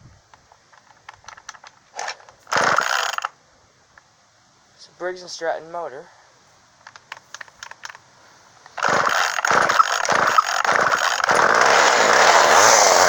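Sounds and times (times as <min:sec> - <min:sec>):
chainsaw engine sputtering and running: 0:02.5 - 0:03.3, 0:08.8 - 0:13.0.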